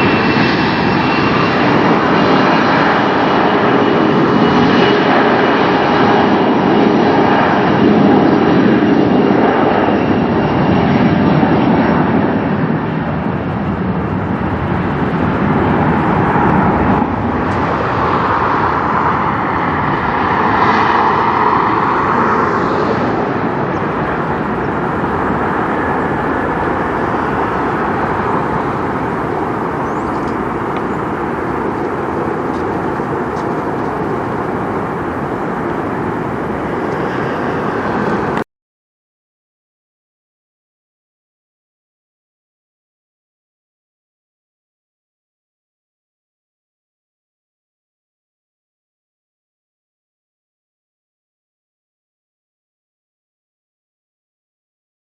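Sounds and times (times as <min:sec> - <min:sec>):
jet engines rushing: 0:00.0 - 0:38.5.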